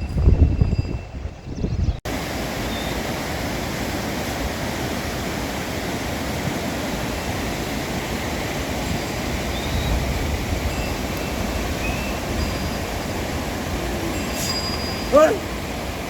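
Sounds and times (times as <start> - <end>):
wind buffeting microphone: 0.0 - 16.0
fast-flowing stream rushing: 2.1 - 16.0.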